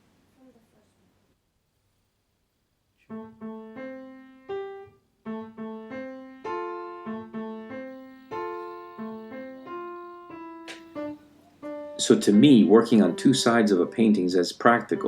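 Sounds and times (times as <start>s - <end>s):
piano notes: 3.1s - 15.0s.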